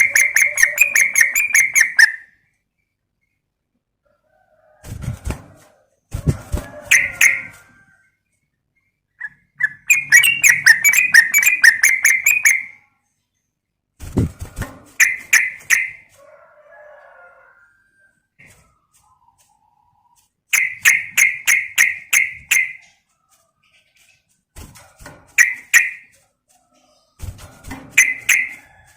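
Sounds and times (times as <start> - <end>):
bird chattering calls: 0.0 - 2.3, 9.2 - 12.8, 27.9 - 28.6.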